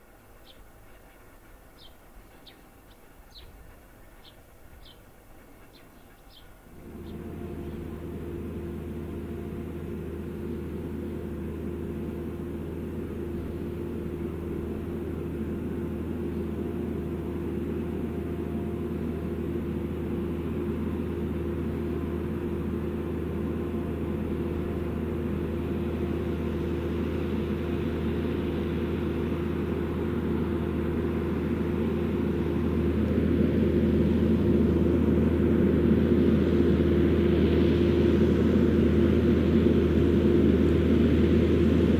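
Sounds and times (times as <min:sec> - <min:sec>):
tractor engine drone: 0:00.0 - 0:41.9
birds chirping: 0:00.2 - 0:21.1.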